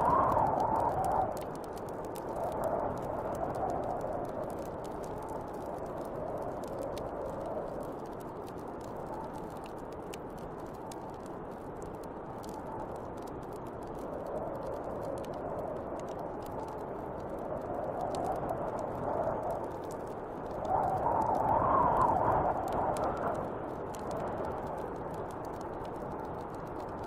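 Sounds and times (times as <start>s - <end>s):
wind blowing: 0.0s - 8.2s, 14.0s - 27.0s
wood fire crackling: 0.0s - 27.0s.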